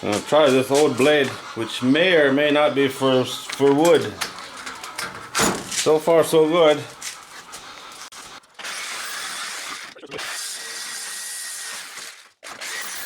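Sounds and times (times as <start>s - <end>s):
jigsaw cutting steel: 8.4s - 13.0s.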